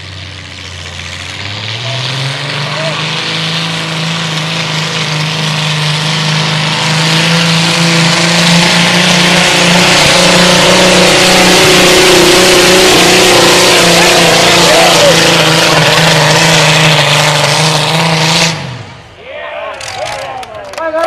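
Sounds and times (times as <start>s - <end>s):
tractor engine running hard: 0.0s - 19.1s.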